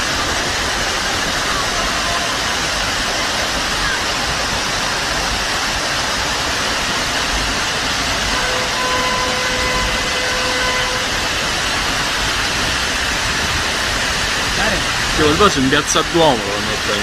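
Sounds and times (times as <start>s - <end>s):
torrential rain and floodwater: 0.0s - 17.0s
steady pitched tone: 8.2s - 12.0s.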